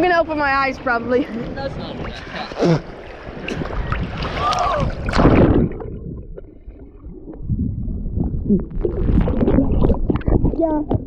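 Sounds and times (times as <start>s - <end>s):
ocean water splashing: 0.0s - 10.7s
muffled underwater sound: 3.6s - 11.0s.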